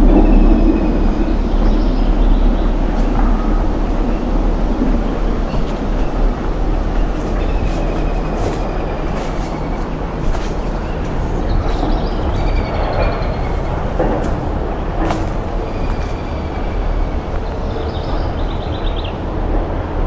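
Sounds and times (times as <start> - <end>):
bird calls and trills: 0.0 - 19.6
noisy haze: 0.0 - 20.0
steady low rumble: 0.0 - 20.0.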